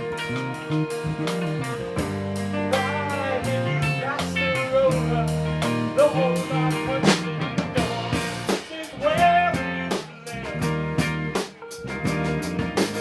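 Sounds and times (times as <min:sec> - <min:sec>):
drums striking steady beat: 0:00.0 - 0:13.0
rock band playing: 0:00.0 - 0:13.0.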